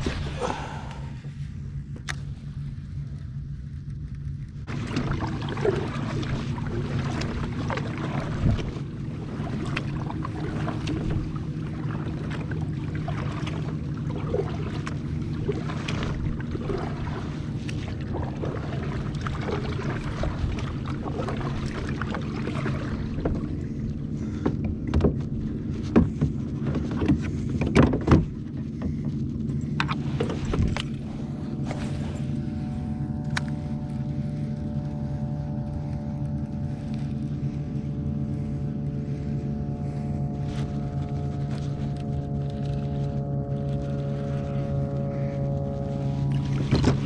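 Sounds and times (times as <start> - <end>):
steady low hum: 0.0 - 47.0
water noise: 0.0 - 47.0
wind: 0.0 - 47.0
gear knocking against hull: 17.6 - 32.0.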